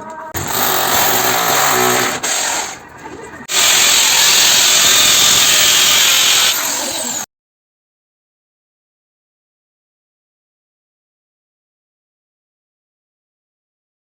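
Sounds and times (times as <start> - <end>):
power tool working metal: 0.4 - 2.8, 3.5 - 7.3.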